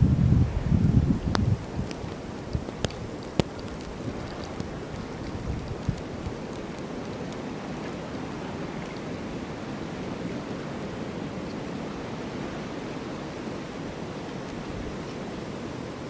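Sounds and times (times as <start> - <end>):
storm wind rushing: 0.0 - 2.7.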